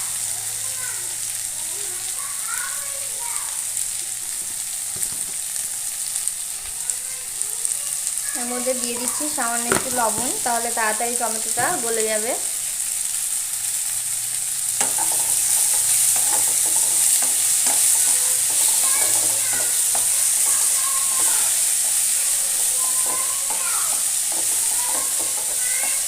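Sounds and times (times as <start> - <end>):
vegetables sizzling in hot oil: 0.0 - 26.0
spatula scraping a pan: 14.1 - 26.0.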